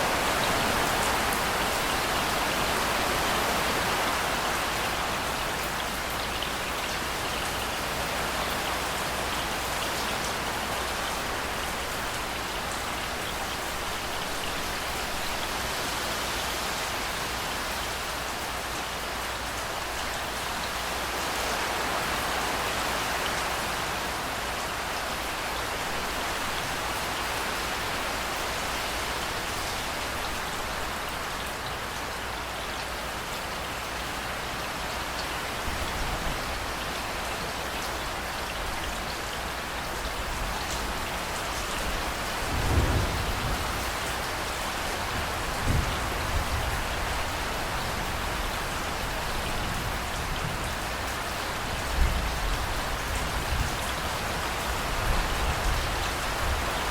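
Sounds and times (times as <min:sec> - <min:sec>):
heavy rain on hard surfaces: 0:00.0 - 0:56.9
thunder rumbling: 0:42.4 - 0:44.1.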